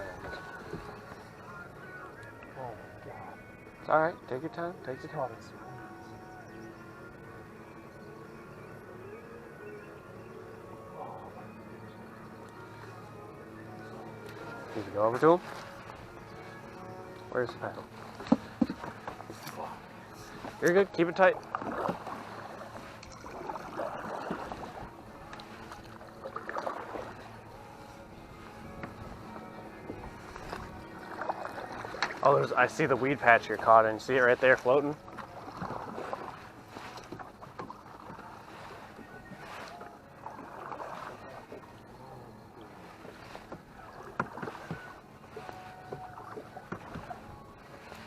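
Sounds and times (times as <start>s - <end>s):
knocks and clicks against hull: 0.0s - 1.3s, 17.4s - 27.3s, 28.4s - 32.8s, 34.6s - 41.7s, 42.5s - 48.0s
water sloshing around a boat: 0.0s - 48.0s.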